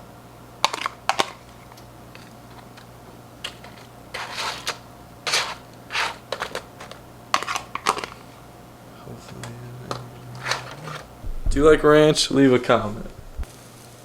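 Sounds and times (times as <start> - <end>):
steady low hum: 0.0 - 13.9
crinkly scraping rustles: 0.7 - 8.4, 9.1 - 11.2.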